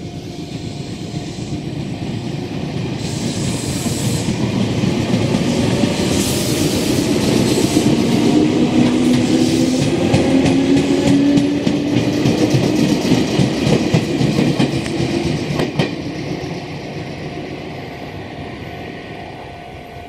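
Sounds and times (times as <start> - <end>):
train hum: 0.0 - 20.0
train wheels clacking over rail joints: 3.0 - 16.6.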